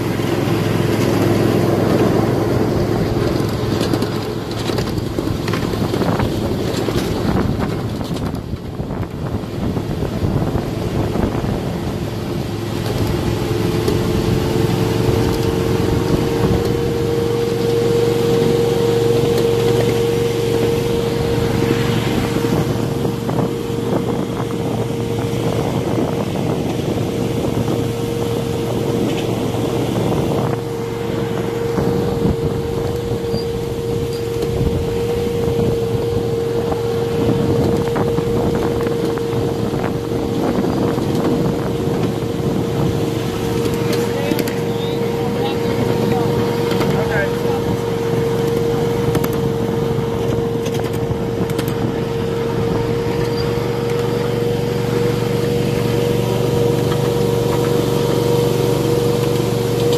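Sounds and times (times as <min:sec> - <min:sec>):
wheels clicking over track: 0:00.0 - 0:09.5, 0:10.2 - 0:23.7, 0:25.8 - 0:59.9
miniature train drive whine: 0:43.5 - 0:59.9.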